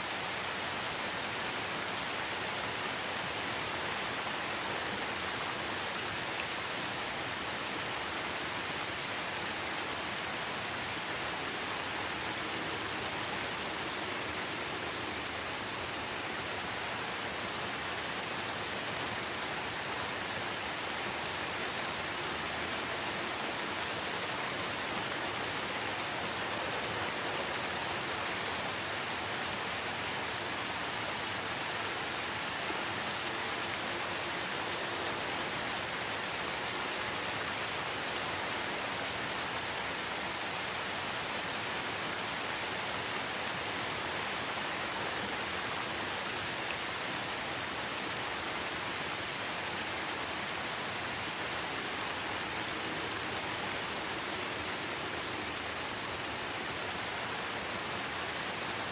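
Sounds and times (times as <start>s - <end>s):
steady rain hiss: 0.0s - 58.9s.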